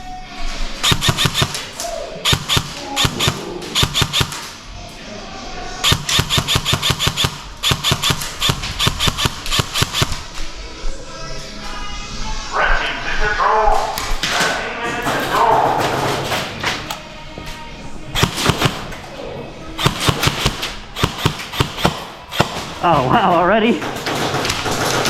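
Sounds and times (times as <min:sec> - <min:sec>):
airsoft gun firing bursts: 0:00.8 - 0:04.5, 0:05.8 - 0:10.3, 0:18.2 - 0:18.9, 0:19.8 - 0:22.8, 0:23.8 - 0:25.0.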